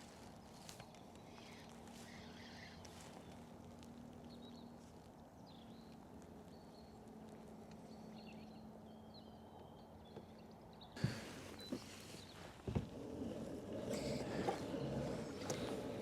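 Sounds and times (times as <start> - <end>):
faint outdoor background: 0.0 - 16.0
faint bird chirps: 1.2 - 3.4.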